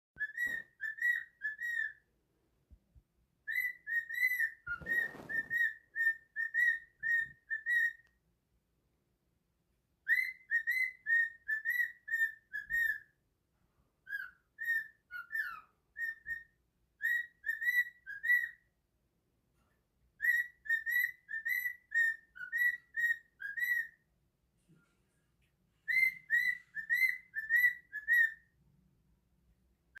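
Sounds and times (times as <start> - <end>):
pet bird whistling: 0.2 - 2.0, 3.4 - 8.1, 10.0 - 13.1, 14.1 - 18.6, 20.2 - 24.0, 25.8 - 28.5.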